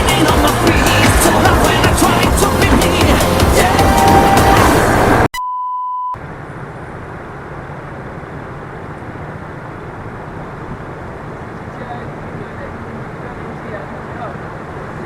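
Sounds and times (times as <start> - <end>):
music: 0.0 - 5.2
wind and road noise: 0.0 - 5.3, 6.2 - 15.0
high beep: 5.3 - 6.2.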